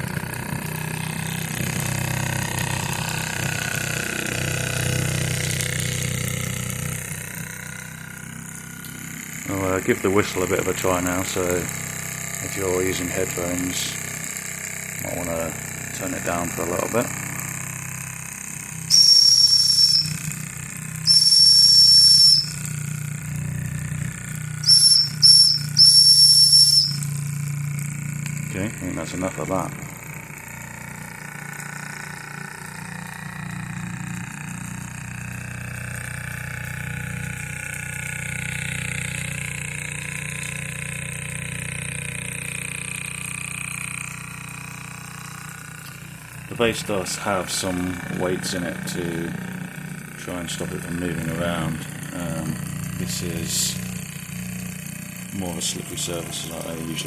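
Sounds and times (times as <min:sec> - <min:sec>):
steam engine running: 0:00.0 - 0:40.5, 0:41.1 - 0:57.0
steam whistle blasts: 0:18.9 - 0:20.4, 0:21.0 - 0:22.7, 0:24.6 - 0:27.2.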